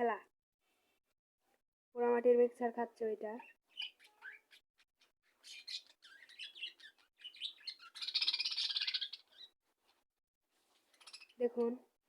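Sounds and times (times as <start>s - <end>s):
budgerigars chirping: 3.7s - 9.6s, 10.8s - 11.4s.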